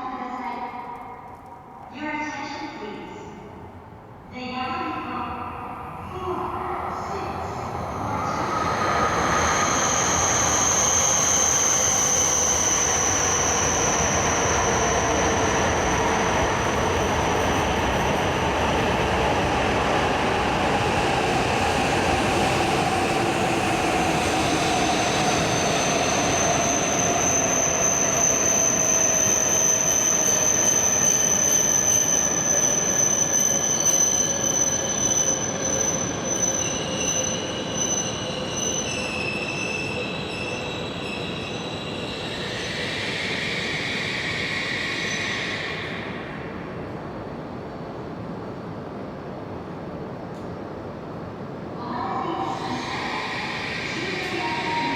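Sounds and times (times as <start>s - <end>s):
train braking whine: 5.8s - 47.0s, 52.2s - 54.9s
train wheel squeal: 7.4s - 46.8s, 52.2s - 54.9s.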